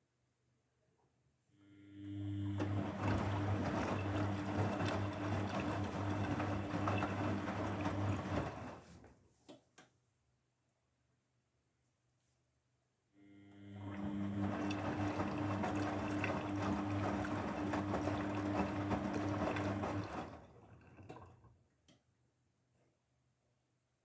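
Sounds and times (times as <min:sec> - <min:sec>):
washing machine water rushing: 0:02.4 - 0:09.0, 0:13.8 - 0:21.6.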